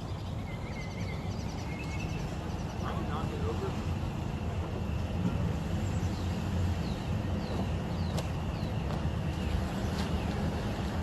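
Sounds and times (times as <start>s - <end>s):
bird chirping: 0.0s - 3.0s.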